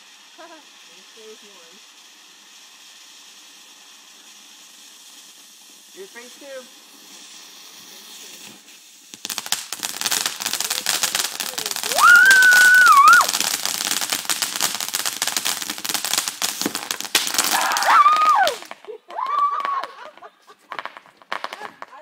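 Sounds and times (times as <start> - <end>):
firework crackling: 0.0 - 22.0
high-pitched firework wails: 6.0 - 21.6.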